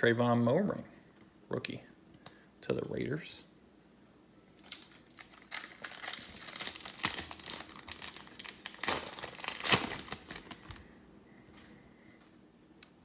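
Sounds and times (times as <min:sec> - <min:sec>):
wrapper crinkling and tearing: 0:04.6 - 0:10.9.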